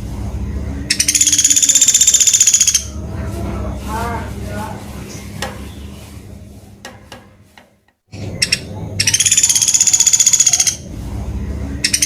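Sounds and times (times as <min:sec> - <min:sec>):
woodpecker rapid high trill: 0:00.7 - 0:03.0, 0:08.2 - 0:10.9.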